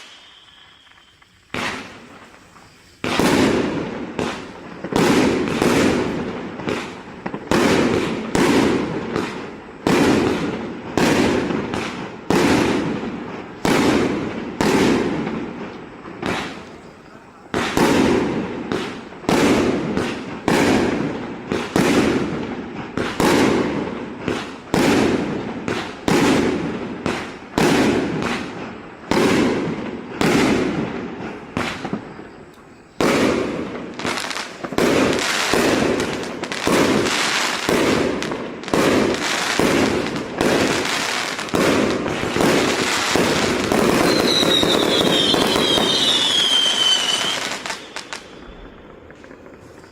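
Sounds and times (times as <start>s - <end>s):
falling firework whistle: 0.0s - 49.9s
firework bangs and crackle: 0.0s - 49.9s.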